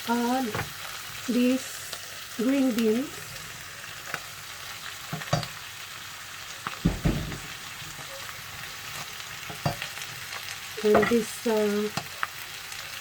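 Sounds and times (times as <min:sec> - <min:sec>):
vegetables sizzling in a pan: 0:00.0 - 0:13.0
utensil knocking against pan: 0:06.8 - 0:07.5.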